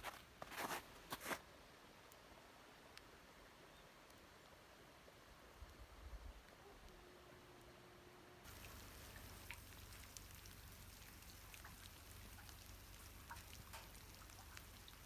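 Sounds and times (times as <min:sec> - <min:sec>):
soft ticks: 0:08.5 - 0:15.0.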